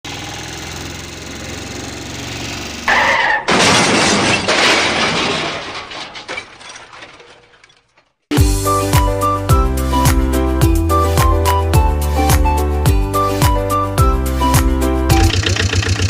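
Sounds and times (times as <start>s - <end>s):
engine running: 0.0s - 3.0s, 15.1s - 16.0s
crash of breaking glass and debris: 2.9s - 8.2s.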